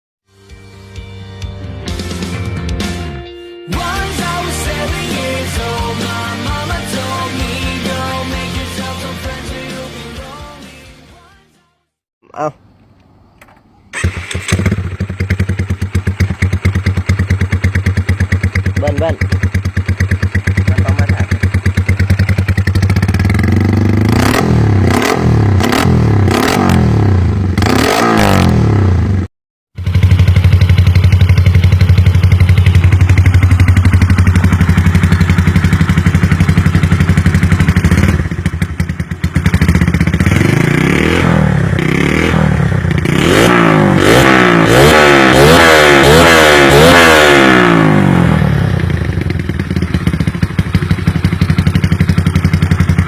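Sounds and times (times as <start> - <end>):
motorcycle engine revving: 13.9 - 53.0.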